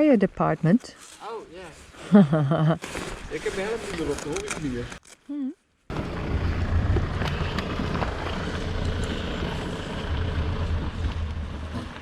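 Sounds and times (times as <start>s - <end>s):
motorcycle engine running: 5.9s - 12.0s
road noise: 5.9s - 12.0s
rushing wind: 5.9s - 12.0s.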